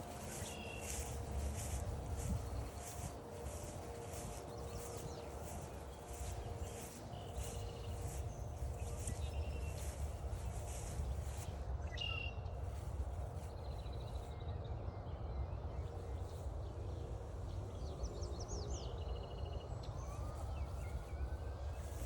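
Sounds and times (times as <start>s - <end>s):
birds chirping and trilling: 0.0s - 12.8s
steady low rumble: 0.0s - 14.5s.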